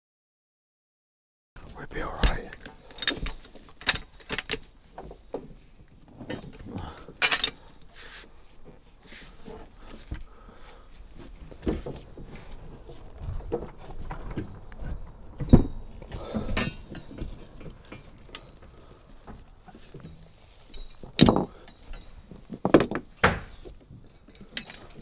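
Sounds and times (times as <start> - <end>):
tools knocking and clinking: 2.2 - 4.7, 7.2 - 7.6, 20.7 - 23.7.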